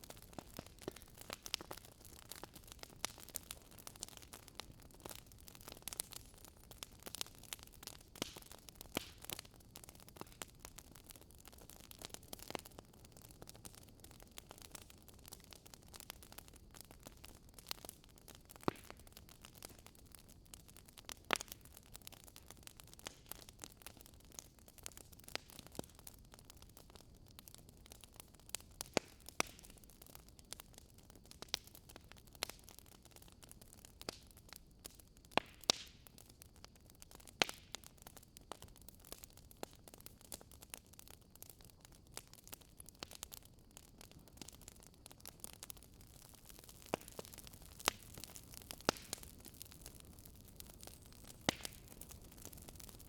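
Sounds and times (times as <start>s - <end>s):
faint steady hiss: 0.0s - 53.0s
fire crackling and popping: 0.0s - 53.0s.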